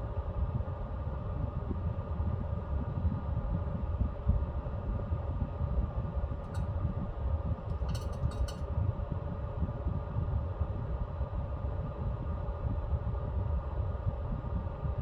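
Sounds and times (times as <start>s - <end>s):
stove fan hum: 5.2s - 10.1s.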